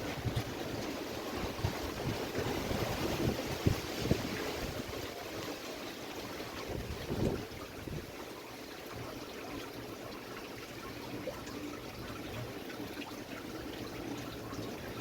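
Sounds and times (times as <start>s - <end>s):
wind buffeting microphone: 0.0s - 5.1s, 6.6s - 8.1s.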